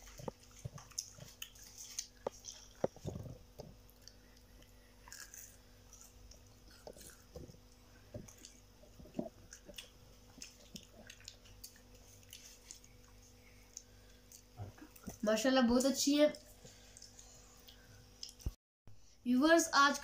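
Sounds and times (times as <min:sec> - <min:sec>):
crunching and chewing: 0:00.0 - 0:15.2, 0:16.5 - 0:18.6.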